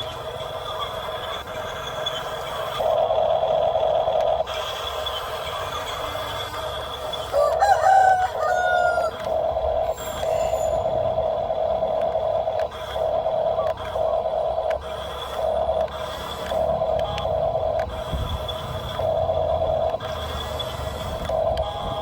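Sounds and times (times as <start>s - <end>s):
electric motor whine: 1.8s - 22.0s
rooster crowing: 7.3s - 9.3s.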